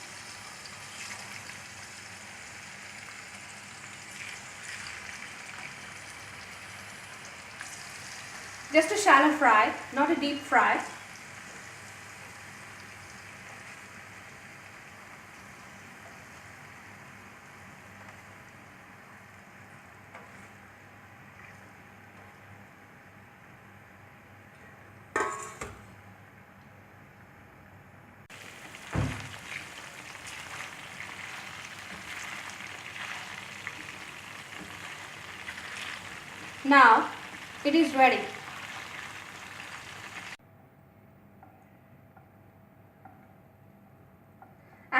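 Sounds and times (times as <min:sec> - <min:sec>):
chicken sizzling in oil: 0:00.0 - 0:20.6, 0:28.3 - 0:40.4
loud low thump: 0:28.9 - 0:29.3.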